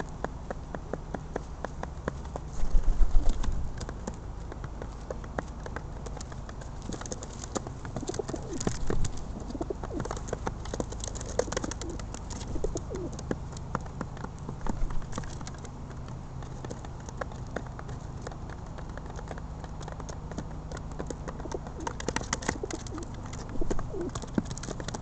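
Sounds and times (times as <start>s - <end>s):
sharp taps and clicks: 0.0s - 25.0s
pigeons cooing: 7.1s - 13.4s, 21.3s - 25.0s.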